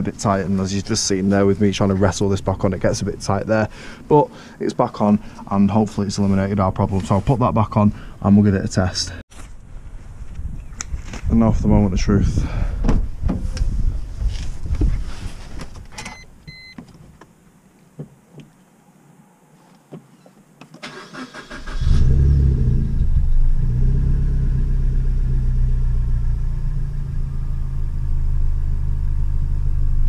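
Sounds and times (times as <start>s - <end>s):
car engine starting and idling: 20.8s - 30.0s.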